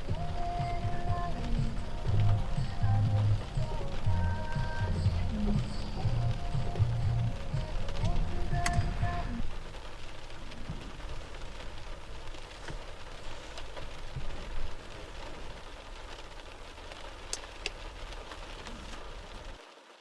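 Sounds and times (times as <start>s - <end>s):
low rumble: 0.0s - 12.1s
heavy rain falling: 0.0s - 20.0s
sharp drip ticks: 17.3s - 17.8s.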